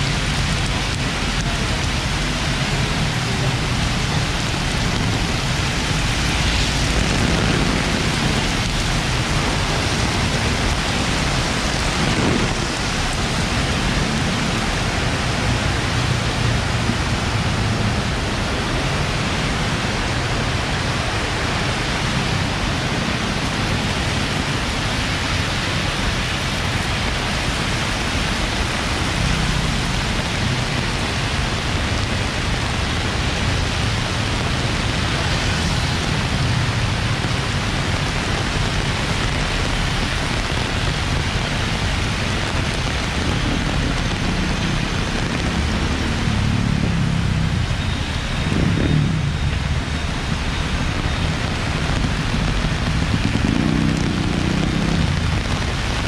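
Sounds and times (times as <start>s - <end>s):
heavy rain falling: 0.0s - 56.0s
traffic on wet road: 0.0s - 56.0s.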